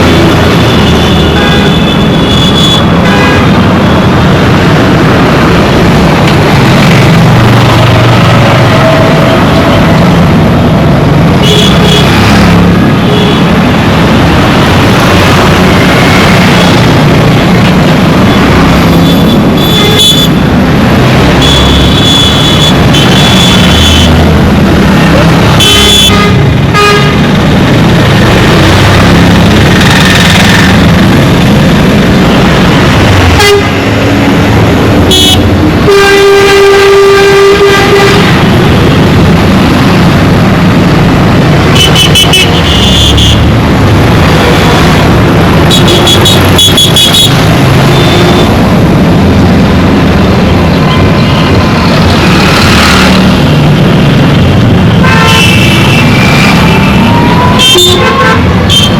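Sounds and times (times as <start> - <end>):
traffic engines rumbling: 0.0 - 58.9
vehicle horns honking: 0.6 - 3.7, 11.4 - 12.2, 18.9 - 20.4, 21.4 - 24.2, 25.5 - 27.3, 33.3 - 33.8, 35.1 - 38.4, 45.7 - 48.6, 55.0 - 56.2, 56.8 - 58.9.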